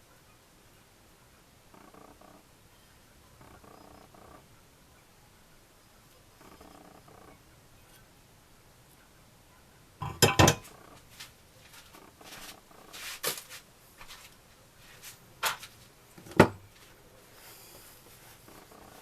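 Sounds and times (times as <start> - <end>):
hand tools clinking and knocking: 10.0 - 10.8.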